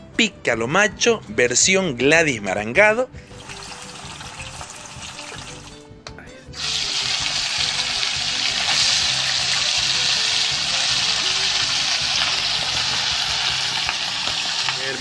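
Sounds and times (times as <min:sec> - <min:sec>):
beef sizzling in hot oil: 0:03.3 - 0:05.8, 0:06.6 - 0:15.0
potatoes frying in oil: 0:03.3 - 0:05.8, 0:06.6 - 0:15.0.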